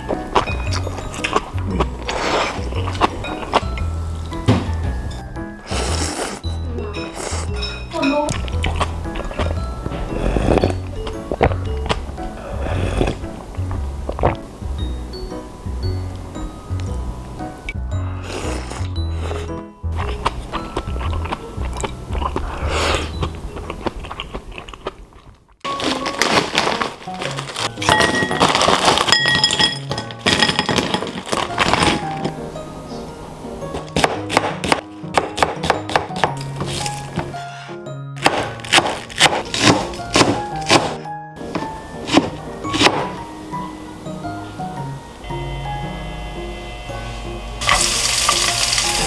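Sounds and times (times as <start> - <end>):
crunchy chewing of food: 0.0 - 5.0, 5.6 - 29.5, 30.1 - 32.6
background music: 0.0 - 24.6, 25.6 - 49.0
knife chopping on cutting board: 33.8 - 37.3, 38.2 - 43.2.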